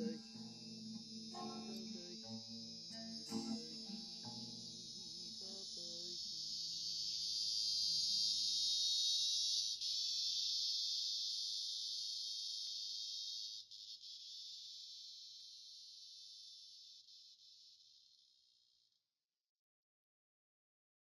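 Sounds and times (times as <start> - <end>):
guitar notes: 0.0 - 6.1
cicada buzzing: 0.0 - 19.0.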